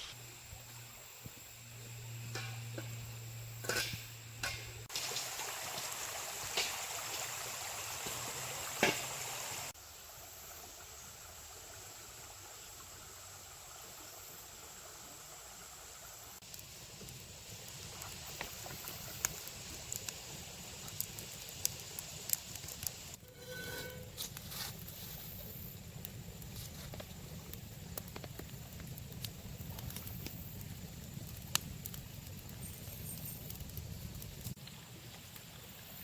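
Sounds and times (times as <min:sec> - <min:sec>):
creek water flowing: 0:04.8 - 0:22.2.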